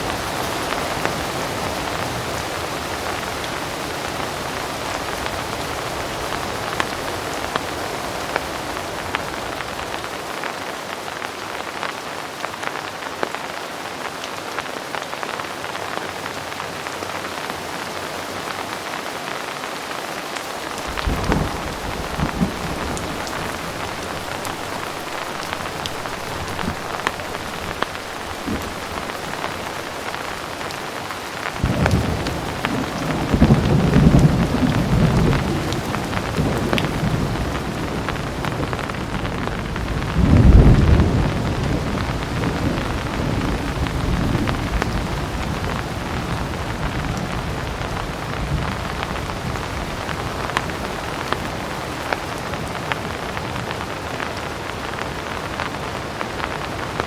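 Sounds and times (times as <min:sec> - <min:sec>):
heavy rain falling: 0:00.0 - 0:57.0
raindrops ticking: 0:20.7 - 0:57.0
thunder rumbling: 0:20.8 - 0:51.3.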